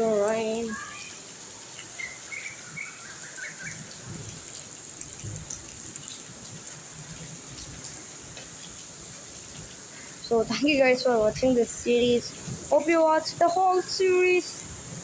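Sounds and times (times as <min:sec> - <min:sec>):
bird chirps: 0:00.0 - 0:06.4
heavy rain hissing: 0:00.0 - 0:15.0.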